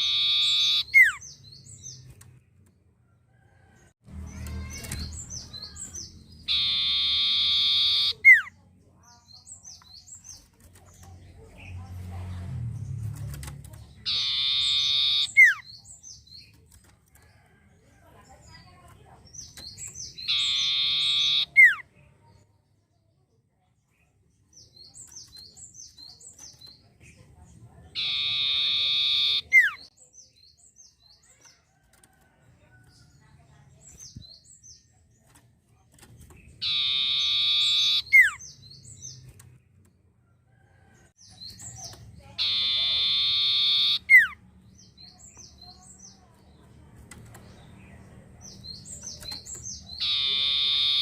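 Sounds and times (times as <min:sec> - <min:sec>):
songbird chirping and trilling: 0:00.0 - 0:51.0.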